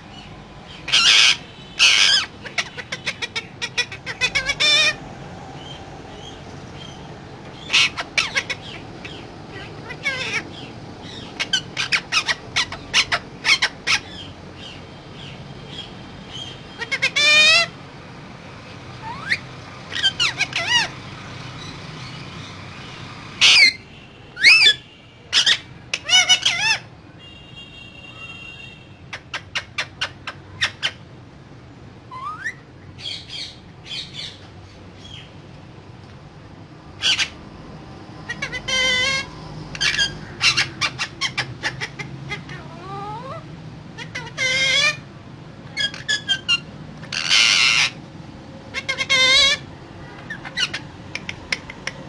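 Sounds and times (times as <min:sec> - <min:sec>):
parakeet squawking and chattering: 0:00.1 - 0:17.8, 0:18.9 - 0:27.0, 0:28.9 - 0:31.2, 0:32.1 - 0:35.4, 0:36.8 - 0:52.0.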